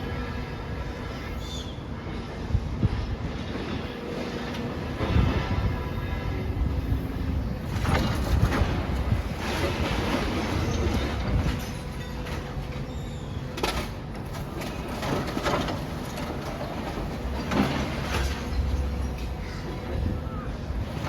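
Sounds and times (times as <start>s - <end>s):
excavator rumbling: 0.0s - 21.0s
wind on microphone: 1.8s - 11.7s.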